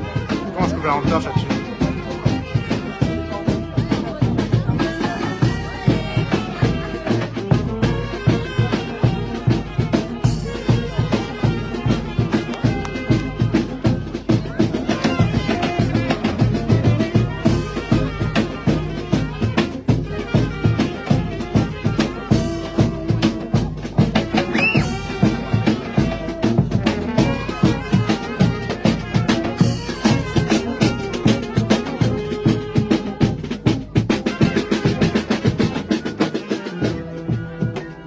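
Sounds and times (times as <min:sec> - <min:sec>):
music with fast drum beat: 0:00.0 - 0:38.0
rising whistle: 0:24.5 - 0:25.0.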